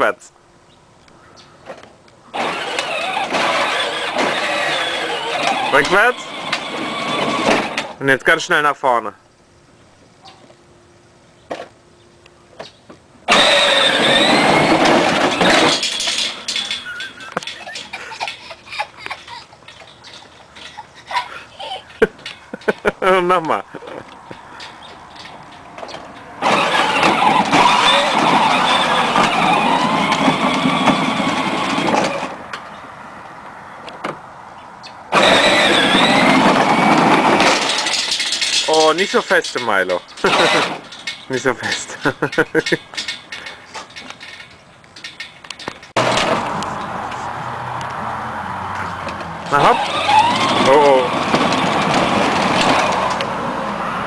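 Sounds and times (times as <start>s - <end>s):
toy engine sound effect: 2.4s - 7.8s, 13.3s - 18.3s, 26.4s - 32.3s, 35.1s - 40.8s, 49.5s - 53.1s.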